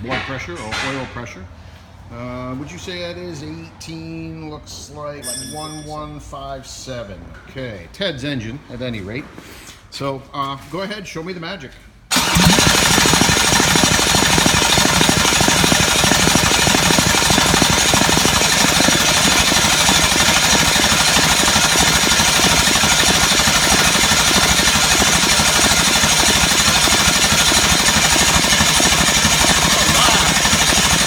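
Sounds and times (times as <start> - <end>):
starter cranking engine: 12.1 - 31.0.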